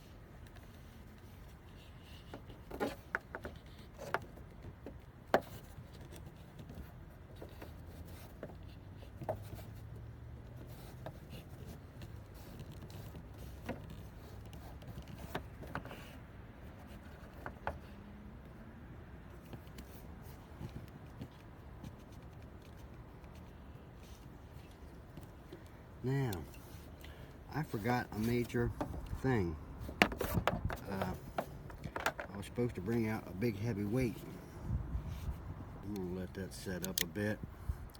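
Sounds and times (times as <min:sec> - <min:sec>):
hands knocking and clicking on part: 0:29.9 - 0:32.4.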